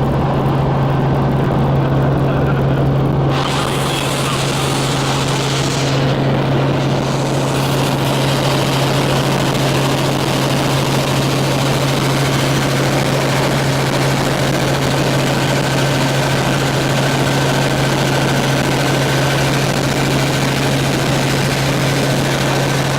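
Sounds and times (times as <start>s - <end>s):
rotor aircraft hum: 0.0s - 22.9s
faint high whine: 3.2s - 13.9s.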